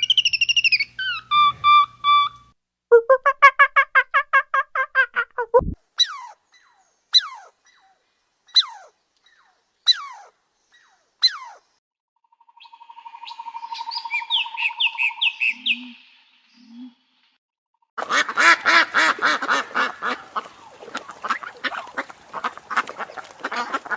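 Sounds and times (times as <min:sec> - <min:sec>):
bird chirps: 0:00.0 - 0:02.4, 0:06.0 - 0:11.6, 0:12.3 - 0:17.0
bird whistles and trill: 0:00.0 - 0:02.4, 0:13.8 - 0:15.9.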